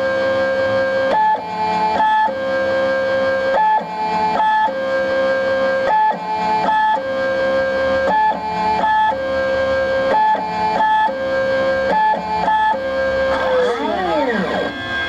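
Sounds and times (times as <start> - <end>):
stepper motors whining: 5.1 - 15.0.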